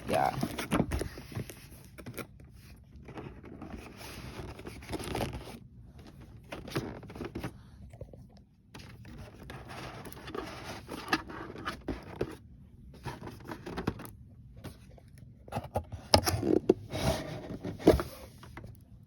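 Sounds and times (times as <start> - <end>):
cardboard box scraping and rustling: 16.0 - 18.5.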